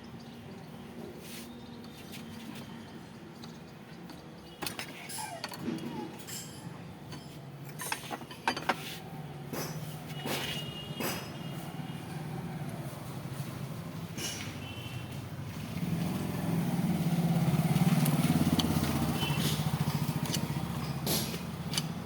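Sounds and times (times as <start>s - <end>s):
metal tools clinking and knocking: 4.1s - 11.4s
vehicle engine humming: 9.0s - 22.0s.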